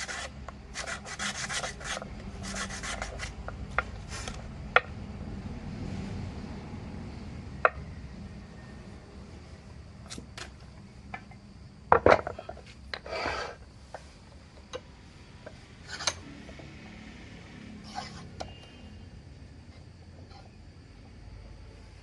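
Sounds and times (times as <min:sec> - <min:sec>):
file scraping metal: 0:00.0 - 0:03.4, 0:13.0 - 0:13.6, 0:17.8 - 0:18.6.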